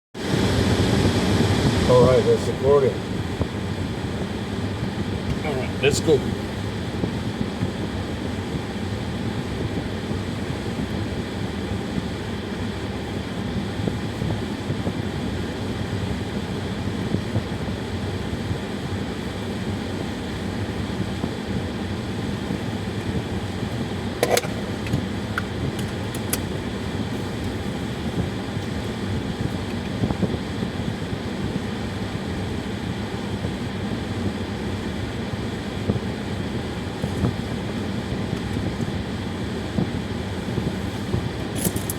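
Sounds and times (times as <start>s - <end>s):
car cabin road noise: 1.9s - 7.8s, 22.5s - 30.4s, 39.8s - 41.9s.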